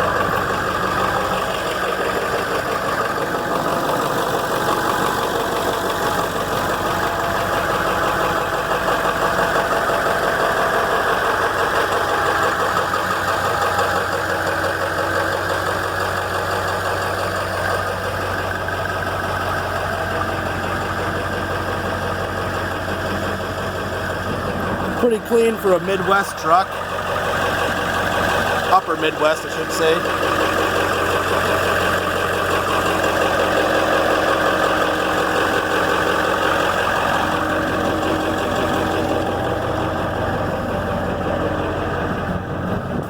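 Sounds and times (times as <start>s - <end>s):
diesel engine idling: 0.0s - 43.0s.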